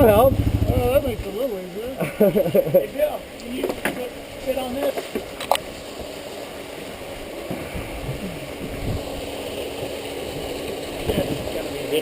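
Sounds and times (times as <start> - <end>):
vehicle engine idling: 0.0 - 1.5.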